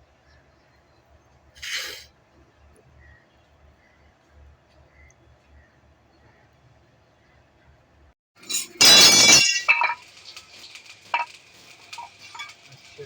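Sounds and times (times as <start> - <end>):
faint hiss: 1.6 - 2.1
loud metallic clatter: 8.4 - 13.0
sharp clink: 8.4 - 13.0.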